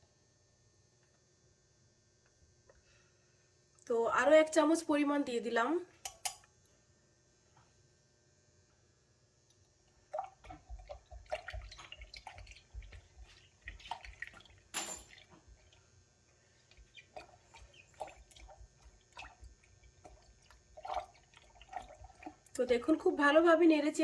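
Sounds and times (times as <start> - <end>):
liquid sloshing and dripping: 9.5 - 22.6
spoon clinking: 14.8 - 15.2.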